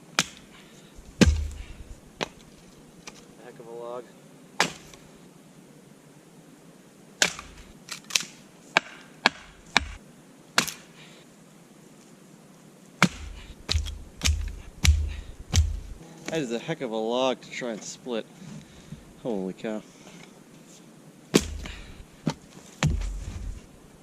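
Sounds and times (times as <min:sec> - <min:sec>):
axe striking a log: 0:00.1 - 0:00.5, 0:01.2 - 0:02.4, 0:04.6 - 0:05.0, 0:07.2 - 0:07.7, 0:08.8 - 0:10.0, 0:10.6 - 0:10.9, 0:13.0 - 0:16.4, 0:21.3 - 0:21.9, 0:22.8 - 0:23.5.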